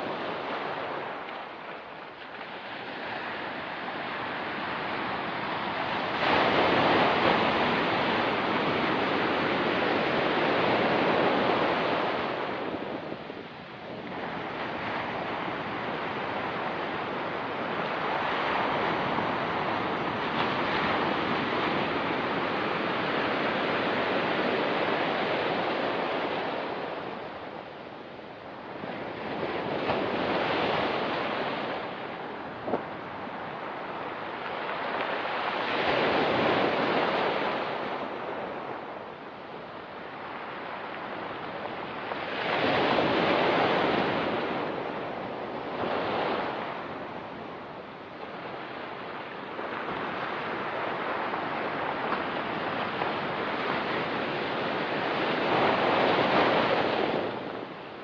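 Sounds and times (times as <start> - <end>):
waves breaking on pebble beach: 2.3 - 27.3.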